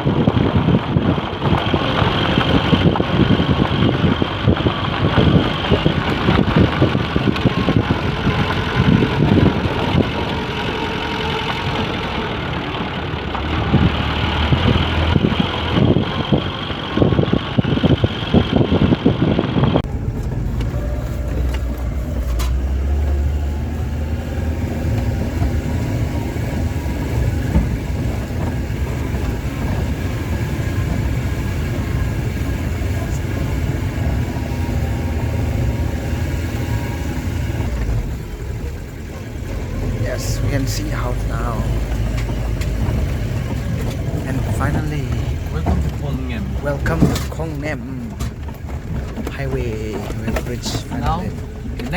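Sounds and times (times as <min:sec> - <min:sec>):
vehicle engine and road noise: 0:00.0 - 0:51.9
vehicle knocks and jolts: 0:19.8 - 0:51.9.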